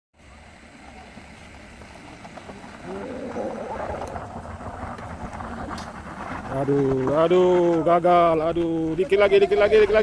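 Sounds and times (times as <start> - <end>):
faint voices: 0.2 - 7.7
heavy vehicle engine running: 0.2 - 7.7
traffic noise: 0.2 - 10.0.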